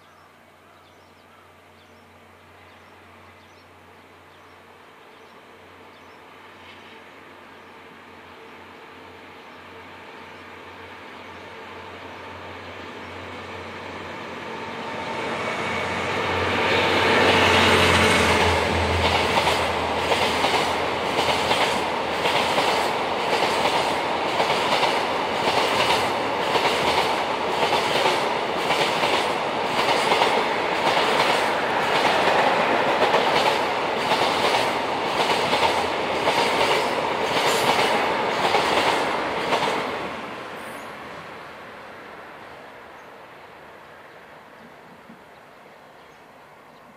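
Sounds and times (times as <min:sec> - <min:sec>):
diesel locomotive engine passing: 0:01.8 - 0:46.7
train wheels clattering over rail joints: 0:18.3 - 0:39.9.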